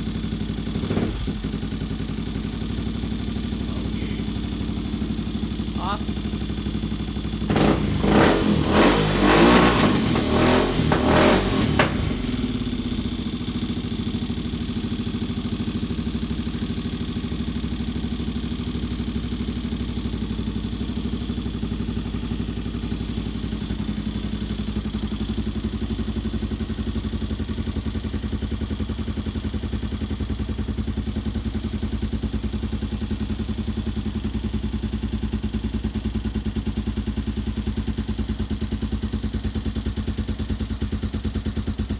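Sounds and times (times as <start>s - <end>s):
motorcycle engine revving: 0.0s - 27.2s
engine idling: 0.0s - 41.9s.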